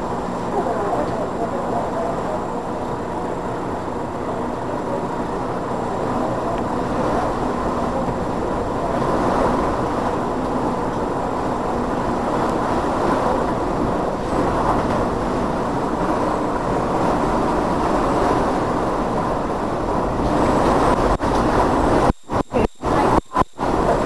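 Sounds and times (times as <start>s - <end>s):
faint steady hum: 0.0s - 24.0s
strong wind rushing: 2.4s - 24.0s.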